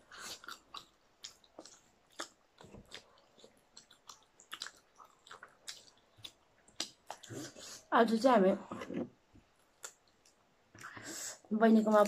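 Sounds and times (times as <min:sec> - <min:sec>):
chewing crispy food: 0:00.0 - 0:07.8, 0:09.5 - 0:10.9.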